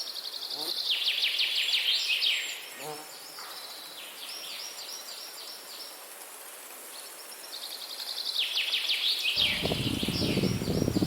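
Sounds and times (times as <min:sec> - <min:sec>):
wind hiss: 0:04.2 - 0:11.0
songbird singing falling notes: 0:08.0 - 0:11.0.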